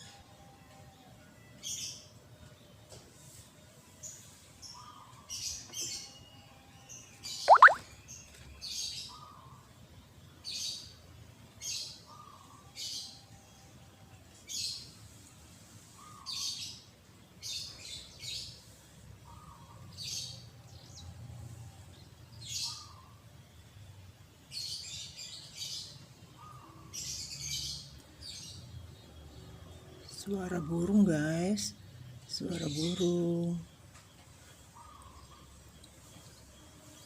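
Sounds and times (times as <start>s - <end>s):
bird high chirps: 7.4s - 7.9s
lower short bird note: 7.5s - 7.8s.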